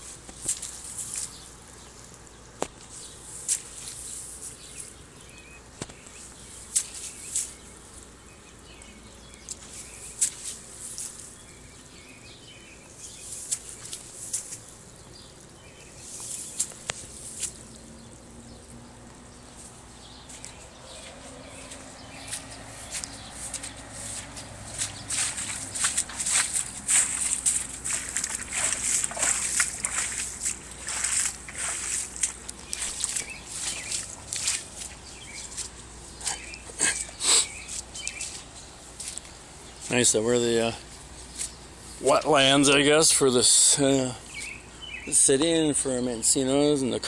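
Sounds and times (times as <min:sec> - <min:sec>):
heavy rain hissing: 0:36.0 - 0:37.7.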